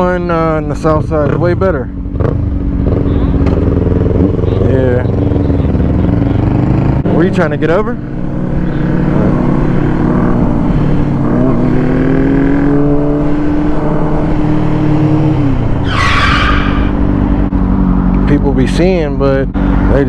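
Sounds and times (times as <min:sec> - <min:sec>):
motorcycle engine revving: 0:01.0 - 0:18.3.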